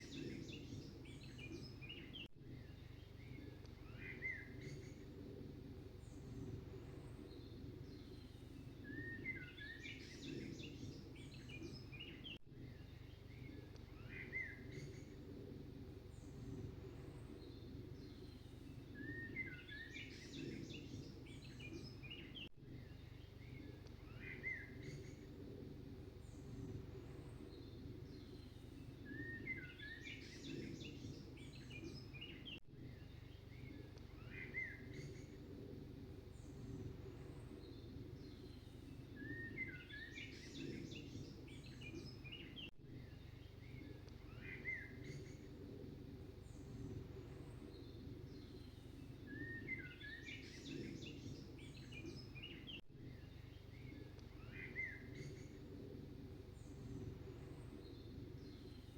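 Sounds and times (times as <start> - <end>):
birds chirping and twittering: 0.0 - 58.9
steady low background noise: 0.0 - 58.9.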